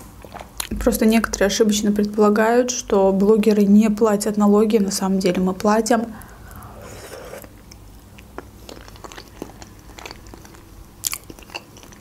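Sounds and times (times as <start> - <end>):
person chewing wet food: 0.0 - 0.8, 6.2 - 12.0.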